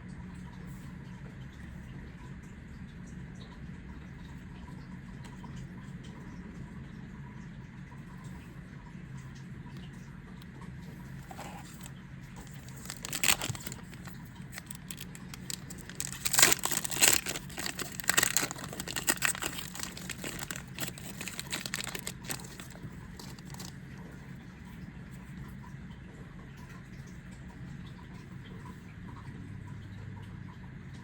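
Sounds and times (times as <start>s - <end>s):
foil wrapper crinkling and tearing: 11.2s - 23.8s.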